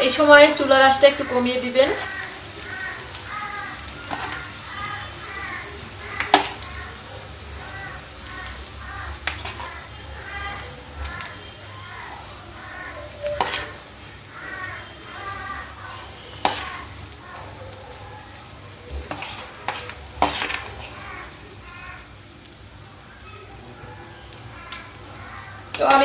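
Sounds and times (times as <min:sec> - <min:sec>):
mixture sizzling in frying pan: 0:00.0 - 0:26.0
metal spoon clinking on pan: 0:13.2 - 0:13.8.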